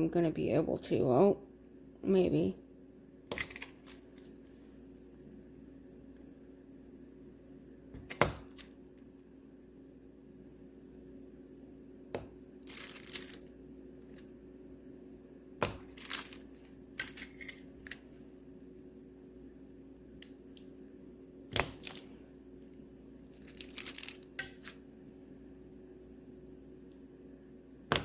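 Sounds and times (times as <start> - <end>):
wax crunching: 3.3 - 4.8, 12.6 - 14.4, 15.6 - 18.2, 21.5 - 24.9.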